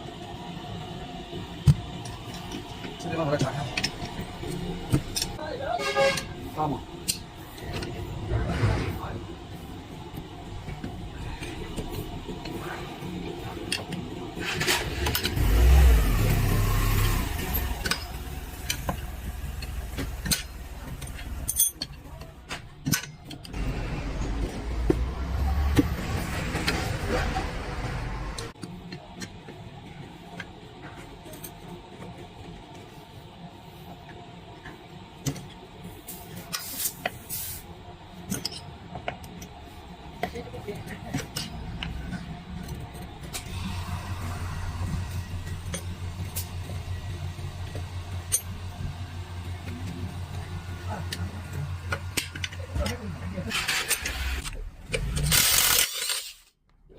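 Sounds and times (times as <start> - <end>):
metal tools clanking: 17.8 - 22.2.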